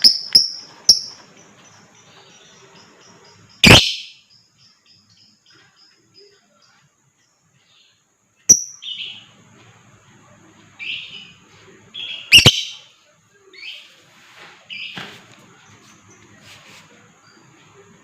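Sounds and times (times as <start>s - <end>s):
lovebird harsh chirping: 0.0s - 5.6s, 8.4s - 9.3s, 12.0s - 12.9s.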